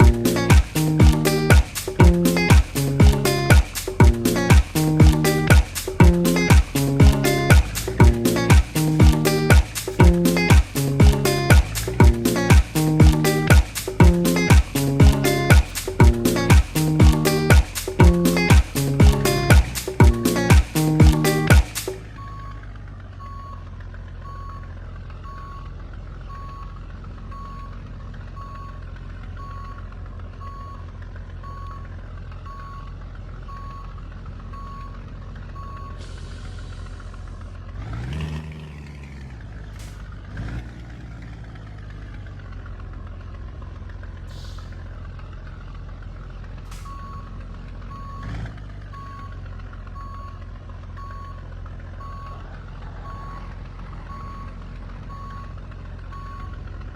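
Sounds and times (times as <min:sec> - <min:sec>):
diesel truck engine running: 0:00.0 - 0:56.9
reversing alarm beeping: 0:22.2 - 0:22.6, 0:23.2 - 0:23.6, 0:24.2 - 0:25.7, 0:26.3 - 0:27.8, 0:28.4 - 0:28.8, 0:30.4 - 0:30.8, 0:31.4 - 0:31.9, 0:32.5 - 0:32.9, 0:33.5 - 0:33.9, 0:35.6 - 0:36.1, 0:46.8 - 0:48.3, 0:48.9 - 0:49.4, 0:50.0 - 0:50.4, 0:51.0 - 0:51.4, 0:52.0 - 0:52.4, 0:53.0 - 0:56.6
short air hiss: 0:36.0 - 0:37.1, 0:44.3 - 0:44.8.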